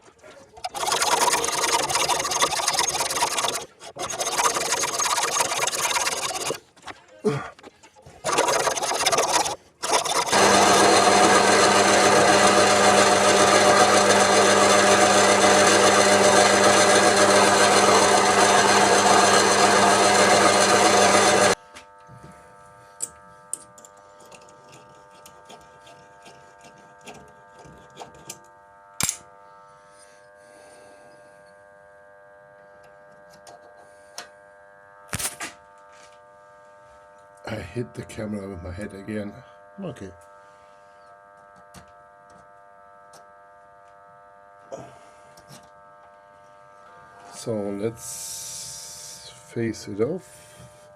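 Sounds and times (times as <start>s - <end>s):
power tool running: 0.6s - 6.8s, 8.1s - 24.1s.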